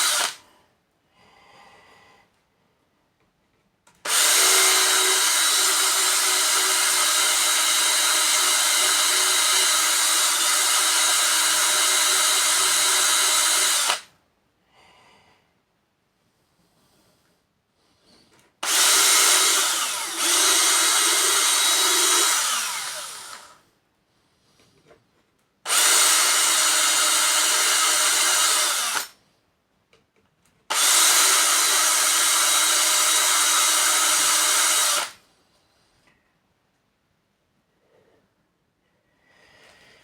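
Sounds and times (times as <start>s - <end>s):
electric drill milling plexiglass: 0.0s - 0.4s, 4.0s - 14.1s, 18.6s - 23.6s, 25.7s - 29.2s, 30.7s - 35.2s.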